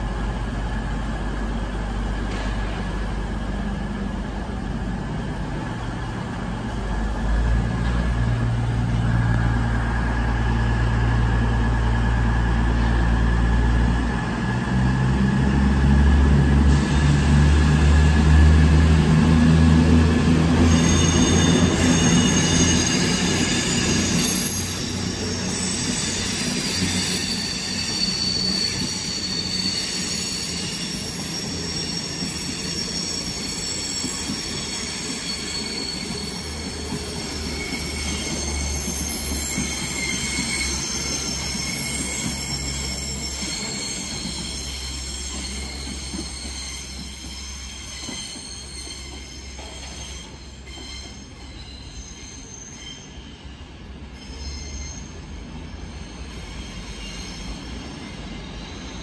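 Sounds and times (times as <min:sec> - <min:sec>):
train track noise: 0:00.0 - 0:59.0
high-pitched wheel squeal: 0:20.5 - 0:53.5.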